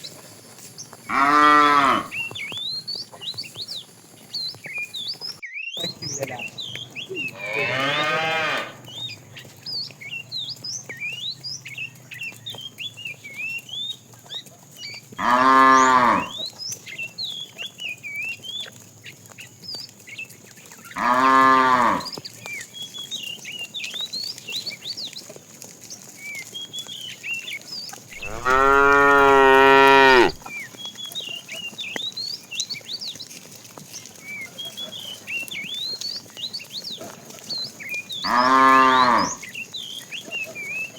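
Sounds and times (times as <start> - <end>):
cows mooing: 1.1 - 2.2, 7.2 - 9.1, 15.2 - 16.4, 21.0 - 22.1, 28.2 - 30.4, 38.2 - 39.5.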